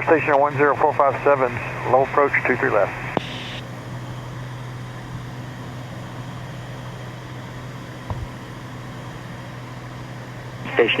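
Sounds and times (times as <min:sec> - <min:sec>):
aircraft engine and propeller droning: 0:00.0 - 0:11.0
low thump: 0:08.1 - 0:08.4.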